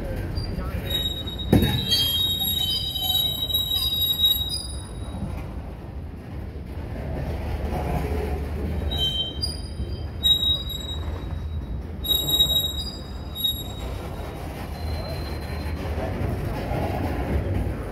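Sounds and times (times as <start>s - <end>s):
rumble of train wheels on rail: 0.0s - 17.9s
high-pitched wheel squeal: 0.4s - 5.3s, 8.8s - 16.0s
thump: 1.5s - 1.9s.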